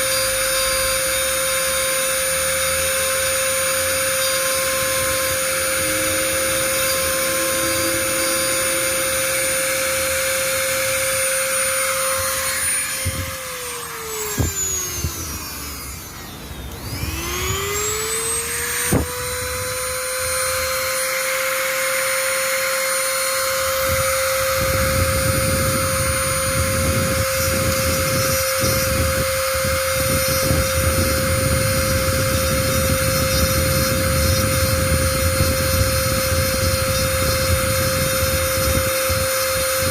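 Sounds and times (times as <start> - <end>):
small electric motor whining: 0.0 - 39.9
rough scraping noise: 4.2 - 13.2.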